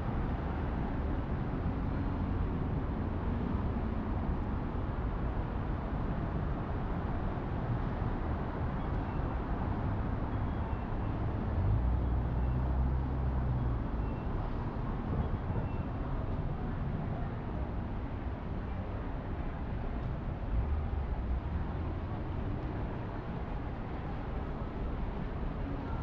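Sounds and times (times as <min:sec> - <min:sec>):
low rumble of engines: 0:00.0 - 0:26.0.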